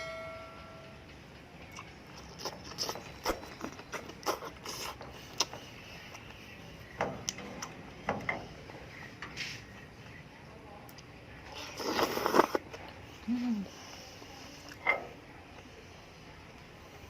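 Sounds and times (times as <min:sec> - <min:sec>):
wet chewing: 0:01.7 - 0:06.6, 0:10.8 - 0:13.0.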